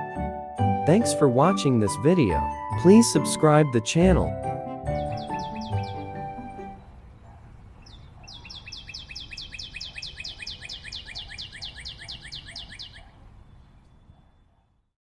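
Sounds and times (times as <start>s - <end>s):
songbird calling descending notes: 2.2s - 7.0s.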